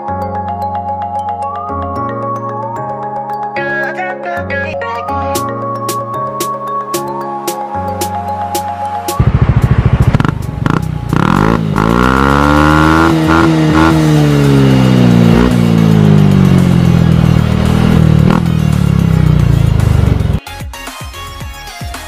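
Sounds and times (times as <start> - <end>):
scooter engine revving: 9.2 - 20.4.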